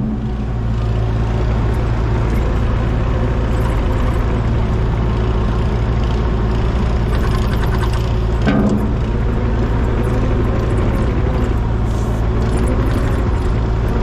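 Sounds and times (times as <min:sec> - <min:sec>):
heavy engine humming: 0:00.0 - 0:14.0.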